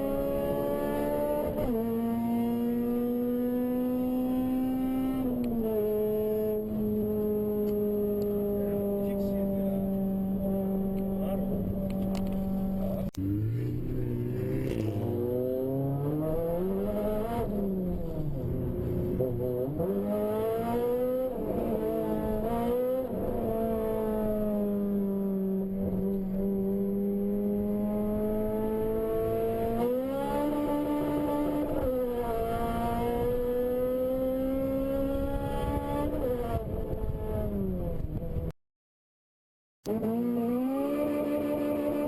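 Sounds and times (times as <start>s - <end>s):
car engine revving hard: 13.2s - 17.7s.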